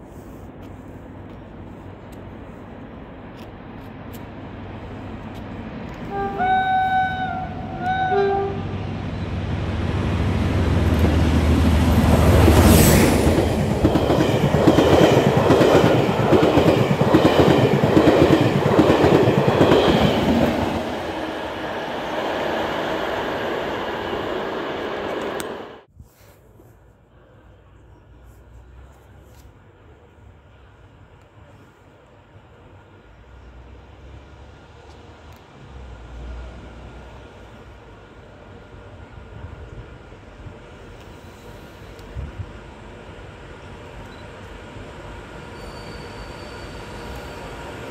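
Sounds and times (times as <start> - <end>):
locomotive rumble: 3.2 - 25.9
locomotive horn blasts: 6.0 - 8.8
train wheels clickety-clack: 10.7 - 21.1.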